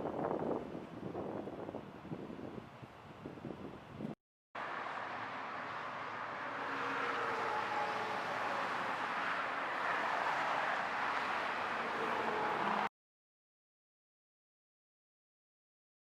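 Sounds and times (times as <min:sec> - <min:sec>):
vehicles passing: 0:04.6 - 0:12.9.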